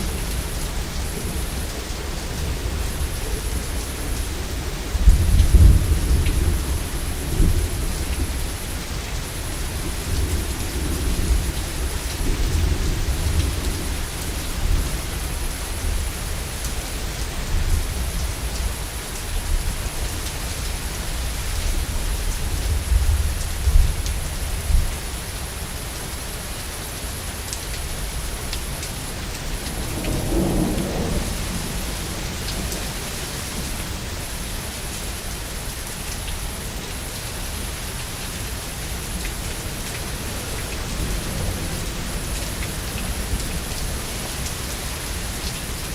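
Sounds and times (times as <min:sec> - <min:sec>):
heavy rain: 0:00.0 - 0:45.9
rolling thunder: 0:29.6 - 0:33.7.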